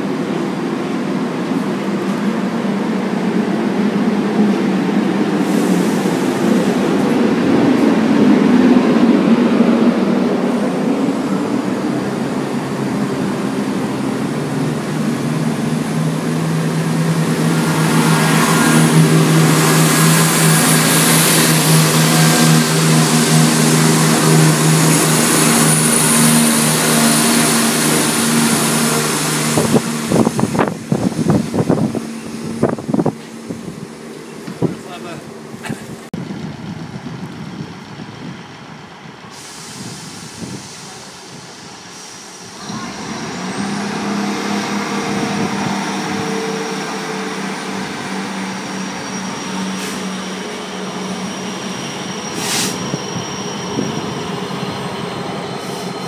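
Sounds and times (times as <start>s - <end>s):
diesel train engine: 0.0s - 56.0s
train coaches rumbling past: 0.0s - 56.0s.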